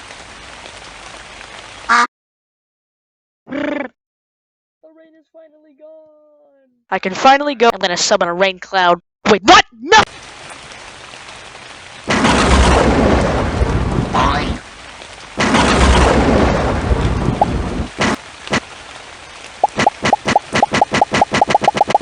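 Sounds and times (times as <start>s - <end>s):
steady rain: 0.0s - 2.0s, 9.9s - 22.0s
thunder rumbling: 12.1s - 14.7s, 15.4s - 18.7s.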